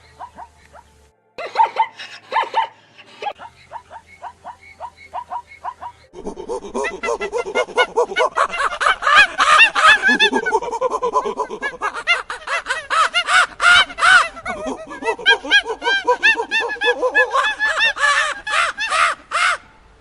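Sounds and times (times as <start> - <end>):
flock of birds calling: 0.0 - 19.8.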